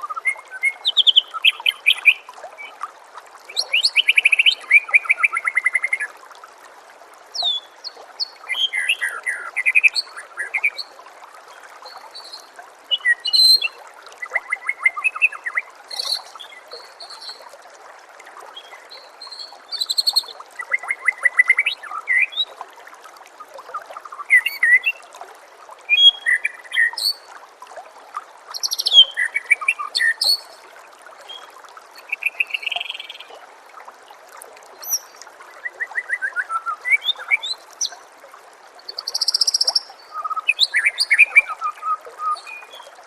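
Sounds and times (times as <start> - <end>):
trickling water: 0.0 - 43.0
songbird singing trills and whistles: 7.4 - 10.9, 11.8 - 17.4, 24.2 - 25.0, 25.9 - 27.2, 28.5 - 30.6, 31.3 - 33.4, 34.8 - 38.0, 38.9 - 42.9.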